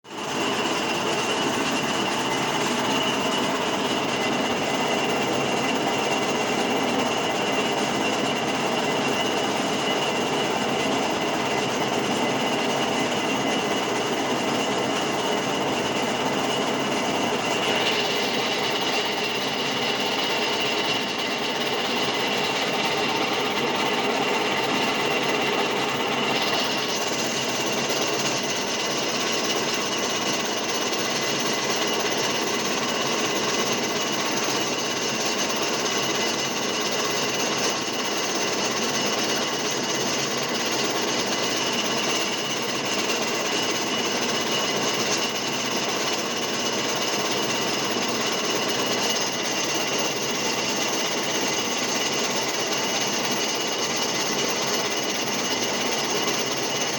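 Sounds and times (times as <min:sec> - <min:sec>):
lathe running: 0:00.2 - 0:56.9.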